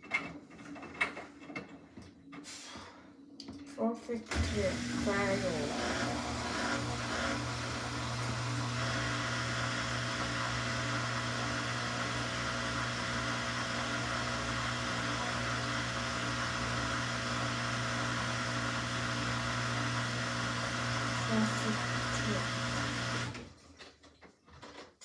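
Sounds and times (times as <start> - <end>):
washing machine spinning: 4.2 - 23.6.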